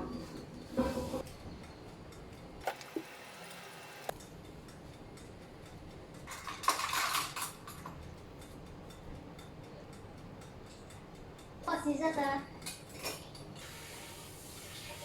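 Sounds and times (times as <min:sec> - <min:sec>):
kitchenware clatter: 0:06.3 - 0:08.0, 0:12.6 - 0:13.5.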